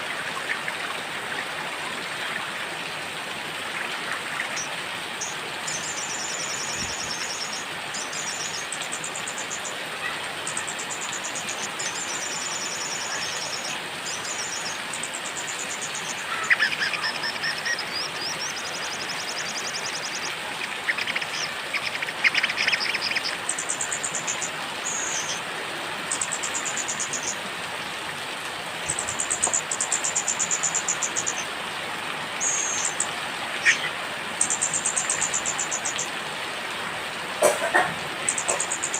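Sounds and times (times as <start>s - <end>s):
rain hiss: 0.0s - 38.9s
songbirds singing trills: 4.4s - 25.4s, 32.4s - 36.1s.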